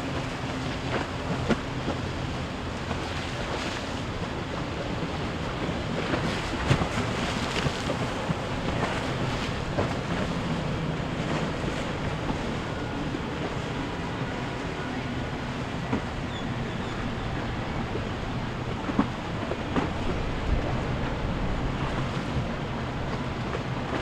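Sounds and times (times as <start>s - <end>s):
boat motors humming: 0.0s - 24.0s
waves washing: 0.0s - 24.0s.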